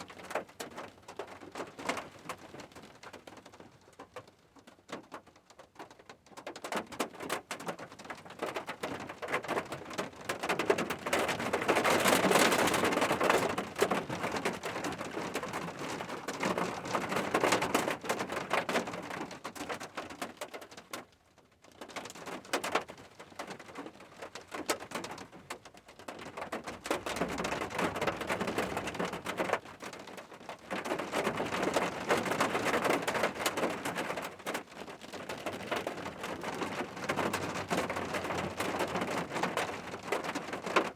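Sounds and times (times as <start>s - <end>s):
rain pattering: 0.0s - 40.9s.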